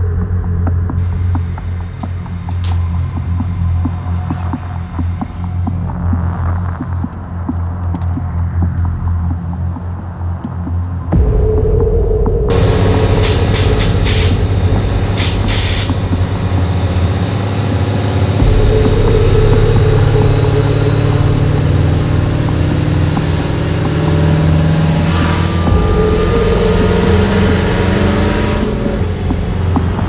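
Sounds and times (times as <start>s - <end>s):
high whine rising in pitch: 11.2s - 30.0s
car engine running: 12.5s - 30.0s
short sharp hisses: 13.2s - 14.5s.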